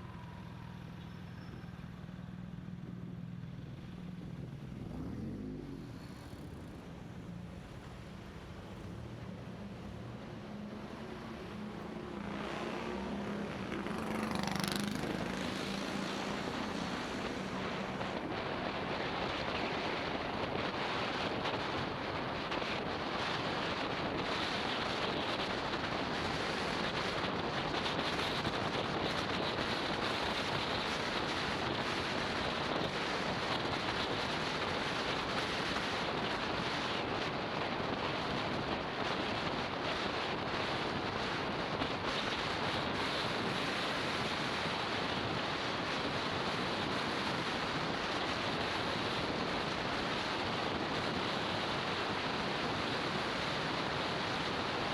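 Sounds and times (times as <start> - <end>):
motorbike engine hum: 0.0 - 35.0
wind rushing over microphone: 3.8 - 54.9.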